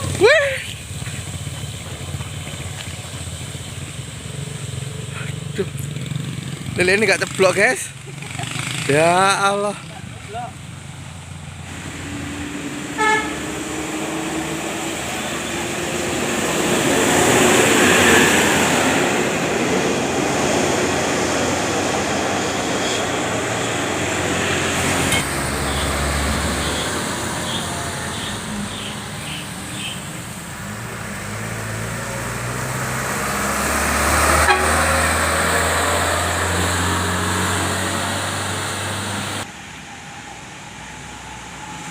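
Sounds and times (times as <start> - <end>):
traffic driving past: 0.0 - 41.9
short horn toot: 13.0 - 13.5, 34.4 - 34.9.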